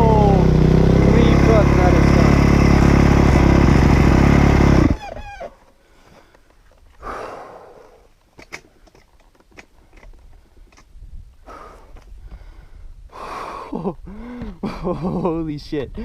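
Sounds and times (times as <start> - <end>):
dirt bike engine running: 0.0 - 5.4.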